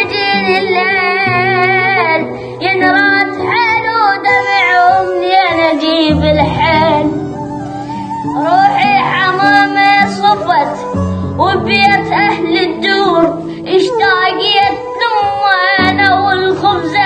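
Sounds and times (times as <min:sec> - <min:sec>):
child singing with vibrato: 0:00.0 - 0:17.0
held accompaniment notes: 0:06.0 - 0:17.0.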